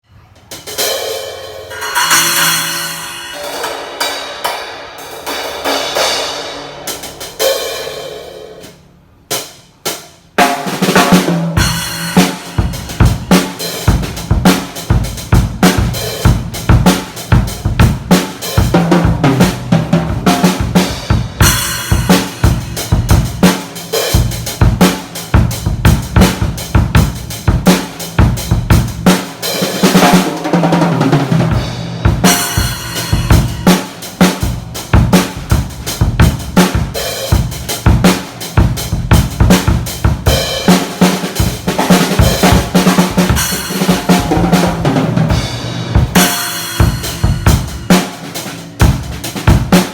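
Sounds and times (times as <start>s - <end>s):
drum kit groove: 0.4s - 49.9s
cymbal strikes ringing: 0.8s - 8.7s.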